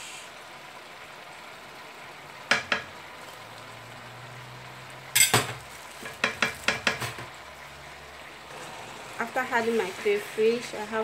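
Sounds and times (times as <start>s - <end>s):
vegetables sizzling in a pot: 0.0s - 11.0s
spoon knocking against pot: 2.5s - 3.0s, 5.2s - 7.3s.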